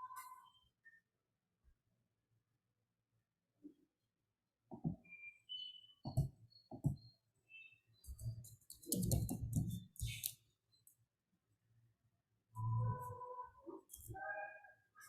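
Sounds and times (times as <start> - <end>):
computer keys and mouse clicking: 8.0 - 11.0.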